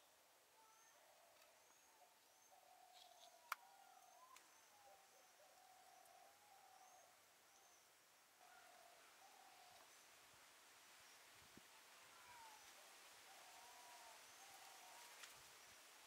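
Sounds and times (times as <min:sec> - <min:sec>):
low hooting bird calls: 0:00.6 - 0:09.9.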